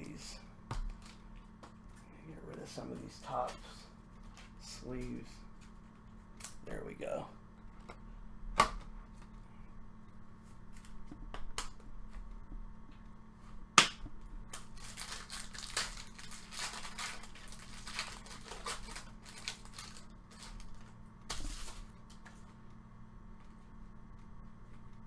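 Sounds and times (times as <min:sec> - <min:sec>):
cards and plastic sleeves rustling: 0:14.5 - 0:22.5.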